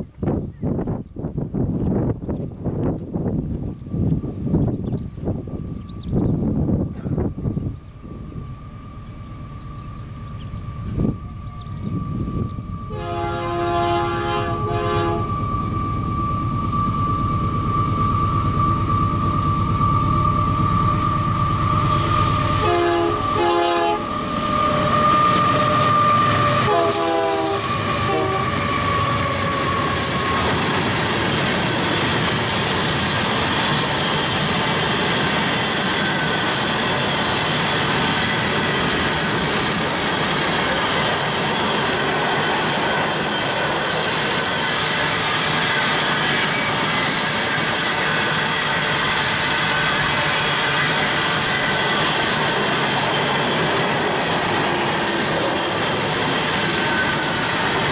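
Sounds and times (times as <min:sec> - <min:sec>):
train wheels on rail: 0:00.0 - 0:57.9
locomotive engines: 0:00.1 - 0:57.9
high whine: 0:03.2 - 0:34.5
locomotive air horn: 0:11.0 - 0:17.0, 0:19.8 - 0:30.4.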